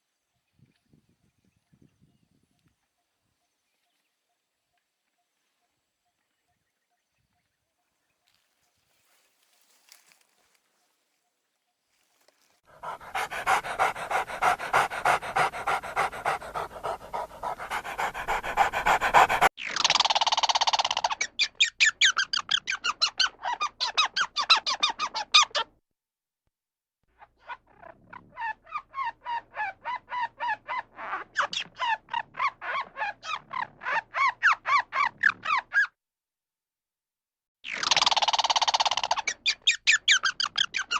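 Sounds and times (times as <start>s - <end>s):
dog panting: 12.7s - 19.5s
bird calling harsh notes: 12.8s - 19.5s.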